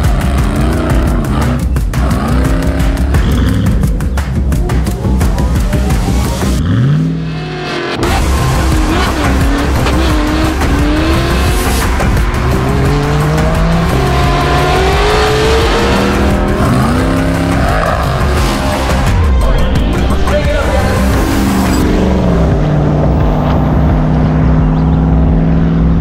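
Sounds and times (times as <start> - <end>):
engine accelerating: 0.0 - 26.0
music: 0.0 - 26.0.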